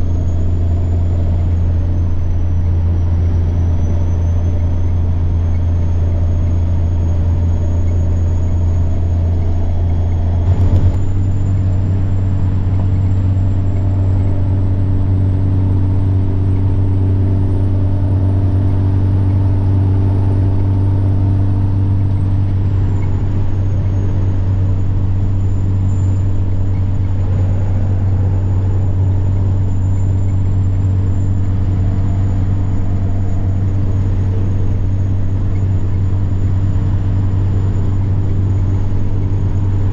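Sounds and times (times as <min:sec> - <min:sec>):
truck diesel engine droning: 0:00.0 - 0:39.9
turbocharger whine: 0:00.0 - 0:39.9.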